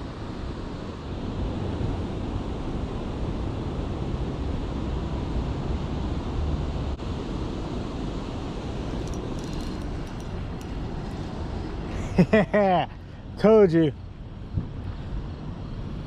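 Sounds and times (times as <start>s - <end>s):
faint clicks: 9.0s - 11.3s.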